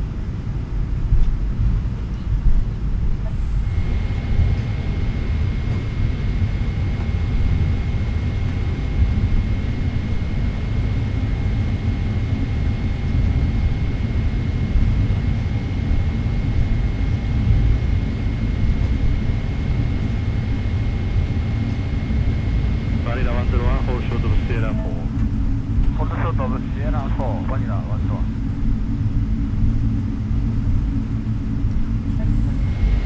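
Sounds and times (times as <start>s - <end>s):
jet engine rumble in cabin: 0.0s - 33.0s
thin high whine: 19.5s - 28.5s.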